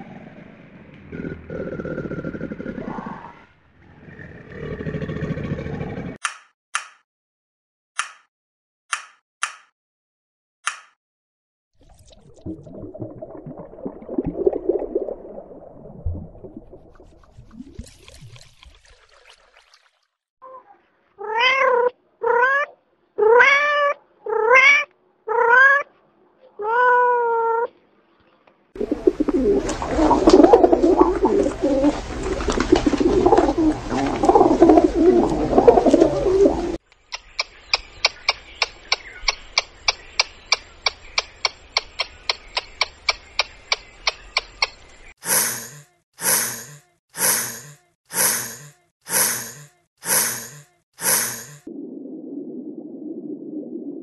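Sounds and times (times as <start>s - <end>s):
cat meowing: 21.2s - 25.9s, 26.6s - 27.7s.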